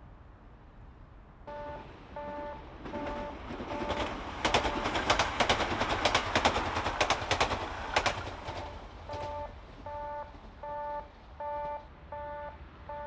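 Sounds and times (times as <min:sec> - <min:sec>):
train wheels clattering: 0:02.8 - 0:09.5.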